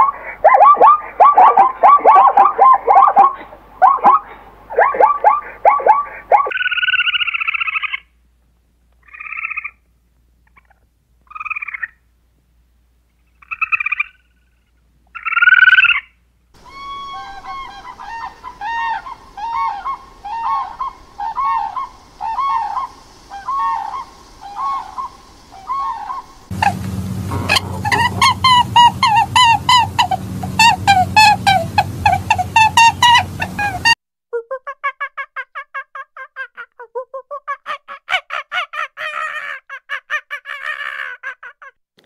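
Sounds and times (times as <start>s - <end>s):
animal calling: 0.0s - 8.1s, 15.2s - 34.0s.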